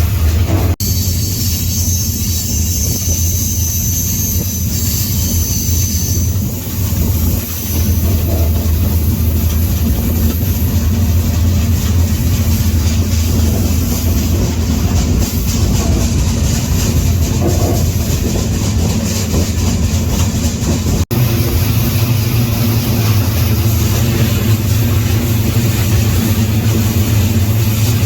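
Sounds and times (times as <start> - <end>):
freight train rumbling on rails: 0.0 - 28.0
faint high squeal: 0.8 - 6.5.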